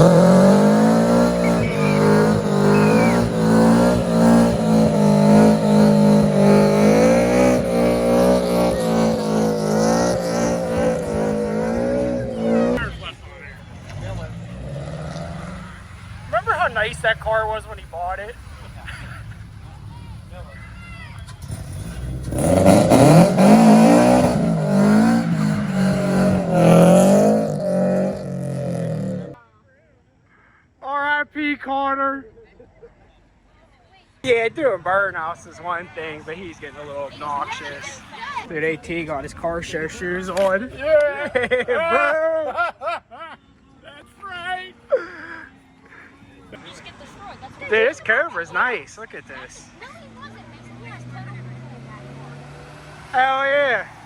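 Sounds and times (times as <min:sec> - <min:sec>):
tyre squeal: 0:00.0 - 0:07.8
car engine at high revs: 0:00.0 - 0:20.5, 0:21.2 - 0:29.4, 0:49.7 - 0:54.0.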